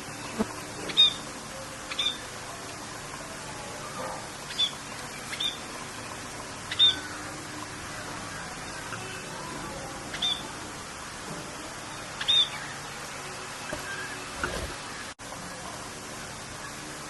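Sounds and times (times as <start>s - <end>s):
rain hiss: 0.0s - 17.0s
bird chirping: 1.9s - 2.3s, 4.5s - 5.6s, 6.7s - 7.2s, 10.1s - 10.5s, 12.2s - 13.0s.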